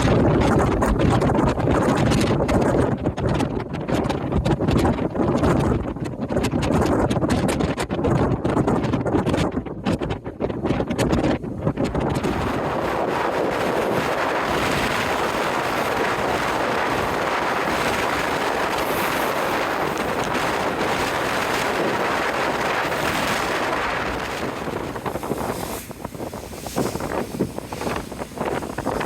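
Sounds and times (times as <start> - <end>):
wind buffeting microphone: 0.0 - 29.0
sea rushing: 10.7 - 29.0.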